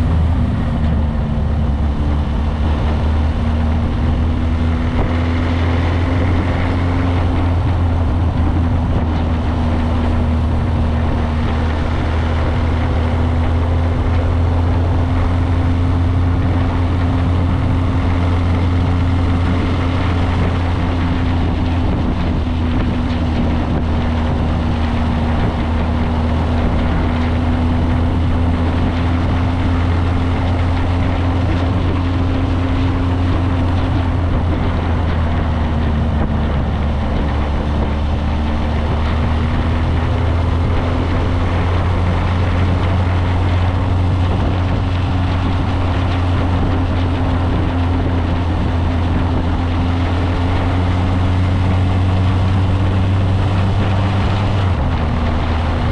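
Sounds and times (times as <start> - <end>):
motorcycle engine cruising: 0.0 - 55.9
wind on microphone: 0.0 - 55.9.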